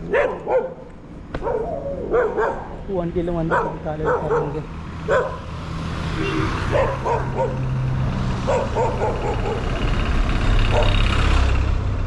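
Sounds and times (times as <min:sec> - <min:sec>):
dogs barking: 0:00.0 - 0:11.4
vehicle engine hum: 0:00.0 - 0:12.0.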